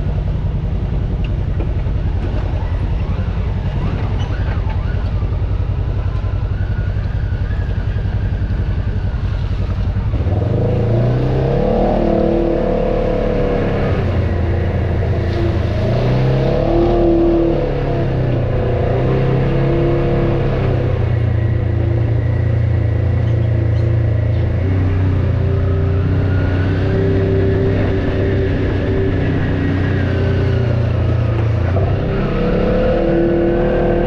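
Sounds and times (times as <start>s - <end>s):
off-road vehicle engine revving: 0.0s - 34.0s.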